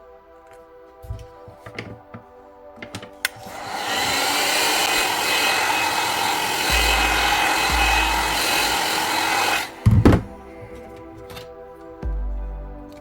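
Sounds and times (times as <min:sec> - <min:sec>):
heat gun blowing air: 0:03.3 - 0:10.3.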